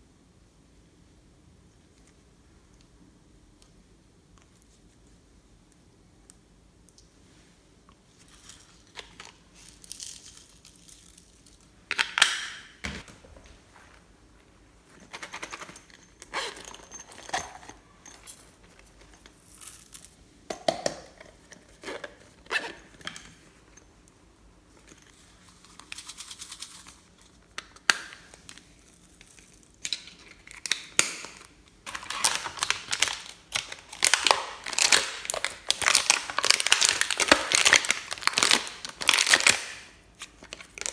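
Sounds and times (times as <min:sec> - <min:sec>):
crinkling handling noises: 0:08.2 - 0:20.2, 0:21.1 - 0:40.9.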